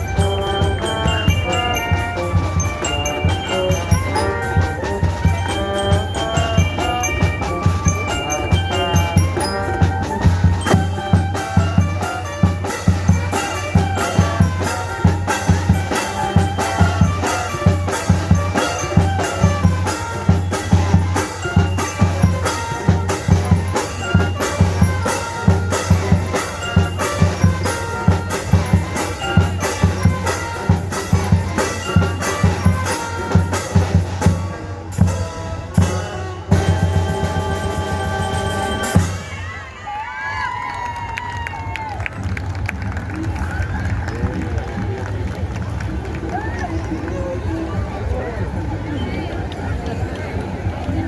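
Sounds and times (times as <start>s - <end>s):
drums struck: 0.0s - 39.5s
band music with melody: 0.0s - 39.7s.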